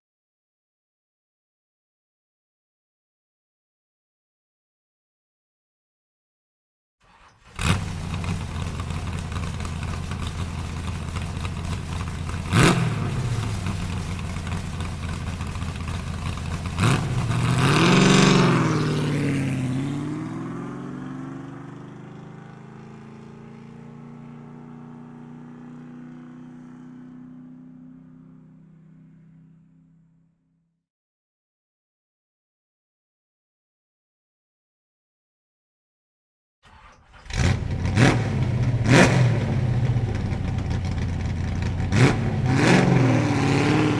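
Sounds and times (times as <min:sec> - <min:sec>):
vehicle engine running: 0:07.4 - 0:26.7, 0:36.7 - 0:43.9.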